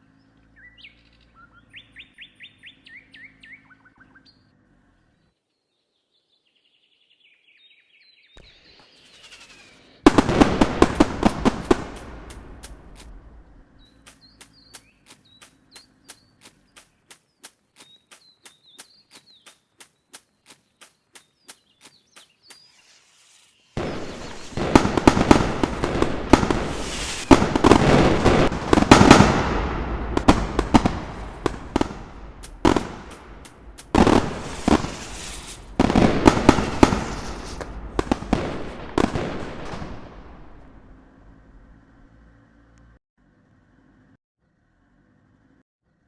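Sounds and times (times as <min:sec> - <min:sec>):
firecrackers banging and crackling: 0:10.1 - 0:13.4, 0:23.8 - 0:41.0.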